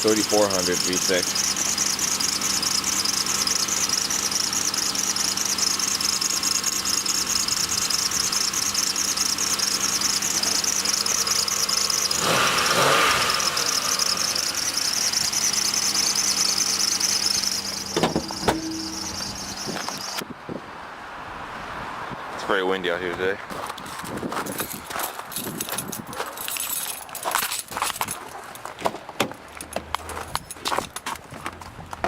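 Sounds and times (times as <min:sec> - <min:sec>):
car engine idling: 0:00.0 - 0:20.2
high-pitched squeal: 0:00.2 - 0:20.2
knocks: 0:17.9 - 0:19.1.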